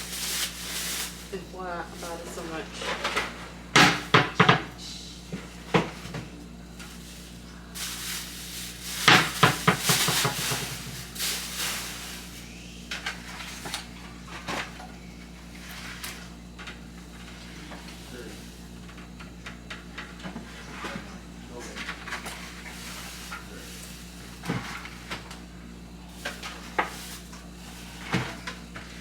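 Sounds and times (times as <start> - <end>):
groceries knocking and clicking: 0.0 - 15.0, 16.1 - 29.0.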